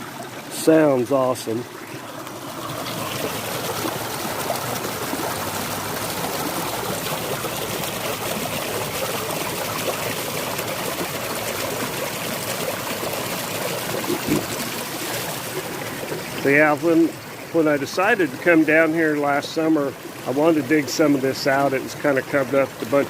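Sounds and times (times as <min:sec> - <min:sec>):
creek splashing over rocks: 0:00.0 - 0:23.0.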